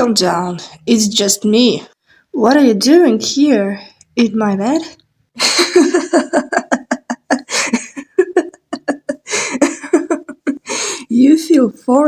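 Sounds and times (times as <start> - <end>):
person laughing: 5.4 - 10.9
breathy intakes: 10.6 - 11.1.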